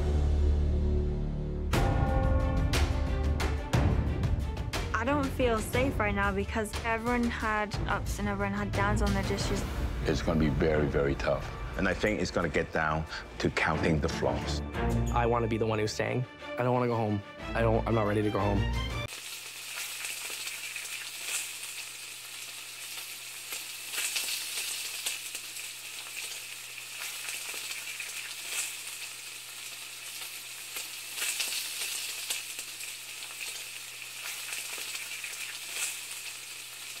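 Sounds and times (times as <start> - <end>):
food sizzling in a hot pan: 19.1 - 37.0.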